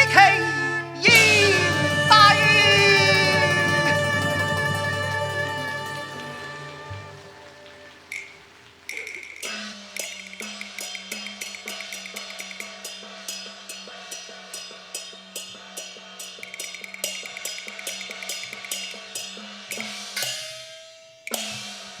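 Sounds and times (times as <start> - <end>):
steady low note: 0.0 - 8.0
cymbal crash: 0.0 - 8.4
percussion strokes: 0.0 - 8.6.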